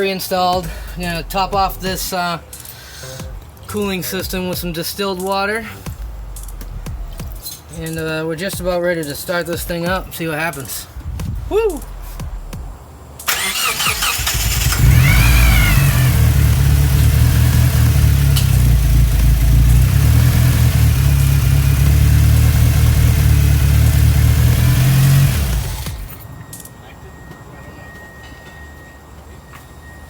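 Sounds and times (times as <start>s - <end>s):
engine cranking: 13.3s - 26.3s
engine running loud: 14.3s - 26.2s.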